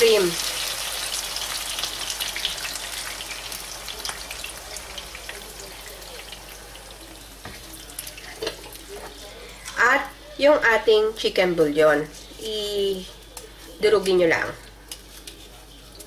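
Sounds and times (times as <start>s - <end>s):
chicken sizzling in a pan: 0.0s - 10.4s.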